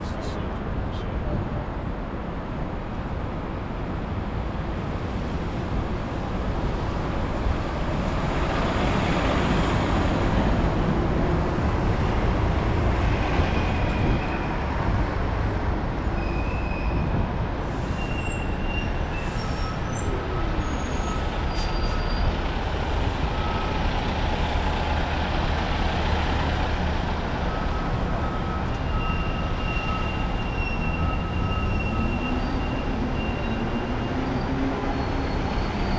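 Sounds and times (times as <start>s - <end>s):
low traffic rumble: 0.0s - 35.9s
high-pitched squeals: 27.8s - 35.9s.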